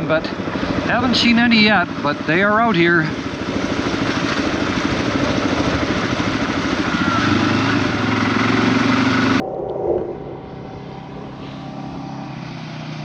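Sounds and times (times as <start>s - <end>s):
off-road vehicle engine running: 0.0s - 9.4s, 10.9s - 13.0s
steady rushing noise: 7.8s - 13.0s.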